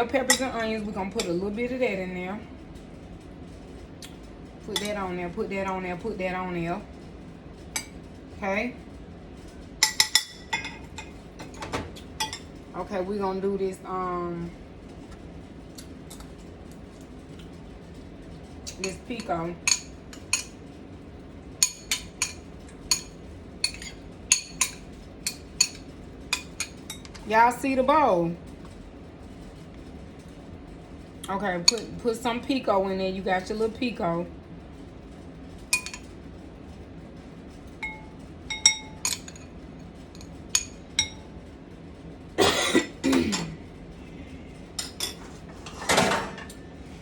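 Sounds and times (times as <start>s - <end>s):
utensil clinking against a dish: 0.1s - 1.5s, 4.7s - 5.8s, 9.8s - 12.6s, 18.6s - 20.7s, 21.6s - 27.4s, 31.3s - 32.8s, 35.6s - 36.2s, 37.7s - 41.3s, 44.8s - 46.6s.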